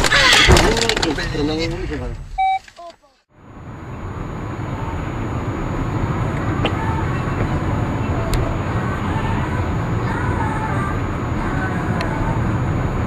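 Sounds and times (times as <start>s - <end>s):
car road noise: 3.3s - 13.0s
low engine rumble: 3.3s - 13.0s.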